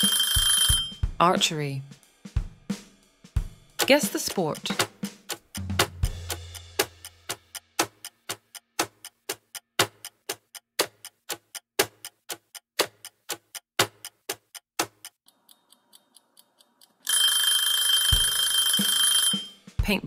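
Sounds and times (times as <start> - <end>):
clock ticking: 0.0 - 1.6, 3.8 - 20.0.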